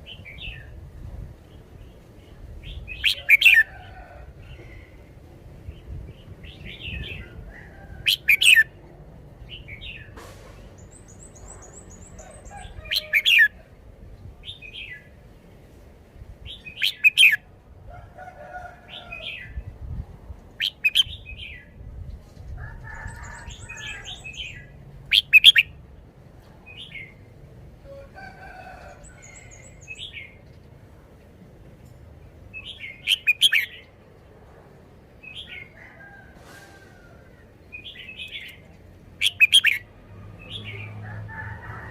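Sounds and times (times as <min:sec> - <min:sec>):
bulbul singing loud phrases: 0:39.2 - 0:41.0.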